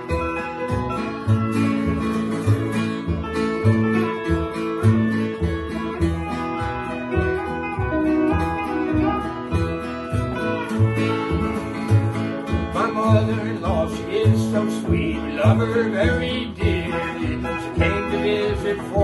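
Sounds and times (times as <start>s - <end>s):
bass line: 0.0s - 19.0s
guitar playing: 0.0s - 19.0s
steel guitar: 0.0s - 19.0s.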